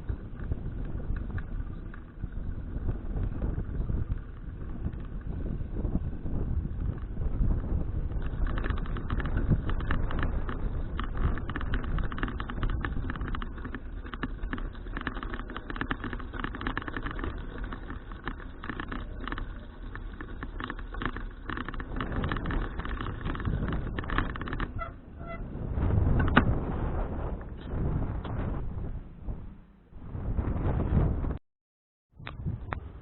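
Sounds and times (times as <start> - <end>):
bicycle clicks and rattles: 0.0 - 25.4
wind and road rumble: 0.0 - 31.4, 32.1 - 33.0.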